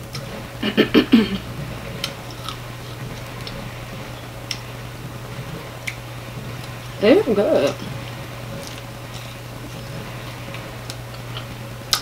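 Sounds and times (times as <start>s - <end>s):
steady low hum: 0.0s - 12.0s
person chewing: 1.3s - 3.6s, 7.7s - 12.0s.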